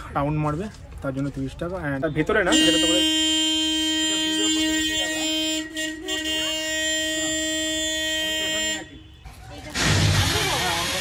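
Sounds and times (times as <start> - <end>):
toy train horn blast: 2.5 - 8.9.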